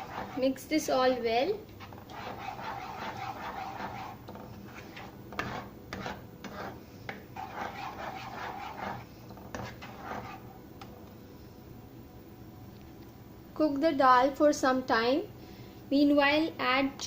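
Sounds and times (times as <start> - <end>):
spatula scraping a wok: 0.0 - 0.6, 1.8 - 10.6.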